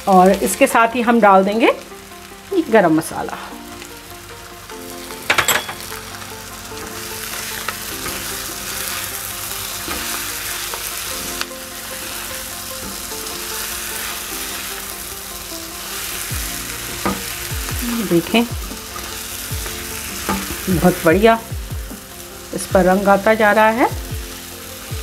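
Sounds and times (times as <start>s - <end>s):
food sizzling in frying pan: 0.0s - 25.0s
spatula stirring: 6.8s - 14.8s.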